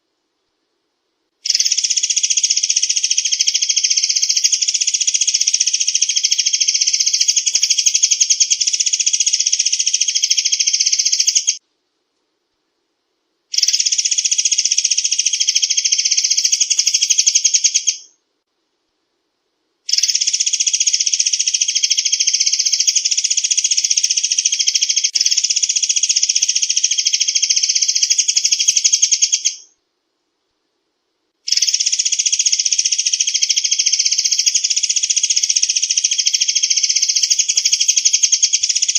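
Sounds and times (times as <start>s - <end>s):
rapid high bird trill: 1.4s - 11.6s, 13.5s - 18.1s, 19.9s - 29.8s, 31.5s - 38.9s.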